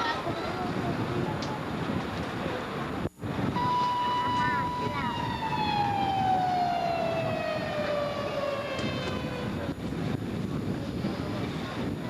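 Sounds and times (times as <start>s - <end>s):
wind rumble on microphone: 0.0s - 12.0s
siren winding down: 3.6s - 9.7s.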